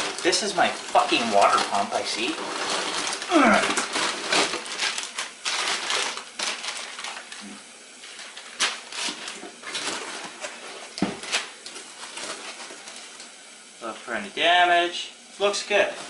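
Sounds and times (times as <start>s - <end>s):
cardboard and packing crinkling: 0.0s - 13.2s.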